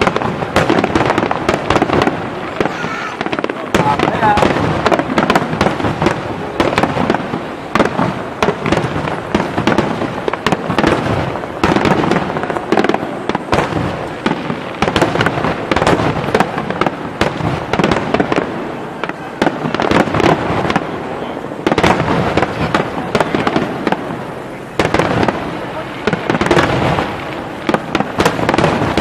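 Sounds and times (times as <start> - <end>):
fireworks bangs: 0.0 - 29.0
fireworks crackling: 0.0 - 29.0.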